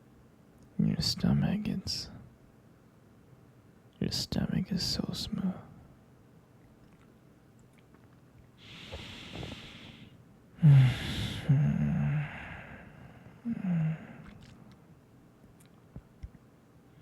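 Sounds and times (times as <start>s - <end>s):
man breathing: 8.6s - 14.5s
breathy sigh: 8.6s - 14.6s
man humming low: 10.6s - 14.7s.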